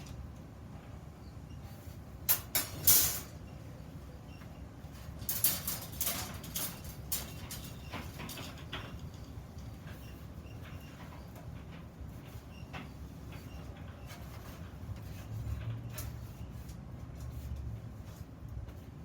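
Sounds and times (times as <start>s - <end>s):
metal workpieces scraping and knocking: 2.3s - 3.4s, 5.0s - 16.6s.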